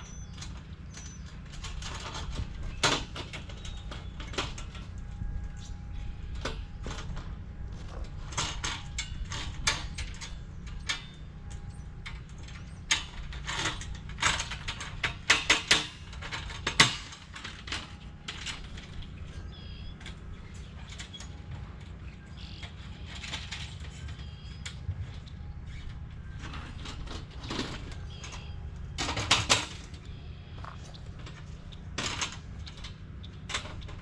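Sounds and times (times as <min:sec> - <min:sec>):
metal clicks knocks and scrapes: 0:00.3 - 0:34.0.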